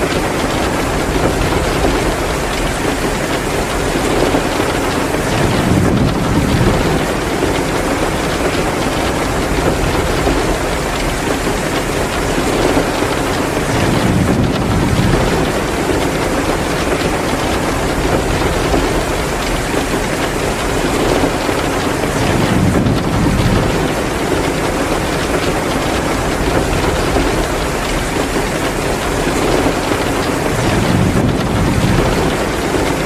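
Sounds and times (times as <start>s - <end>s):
heavy rain pouring: 0.0s - 33.0s
wood fire crackling: 0.0s - 33.0s.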